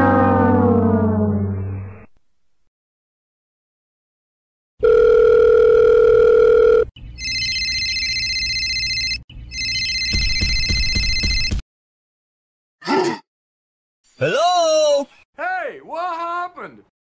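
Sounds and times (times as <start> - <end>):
telephone dial tone: 4.8 - 10.1
electronic telephone ringing: 4.8 - 11.5.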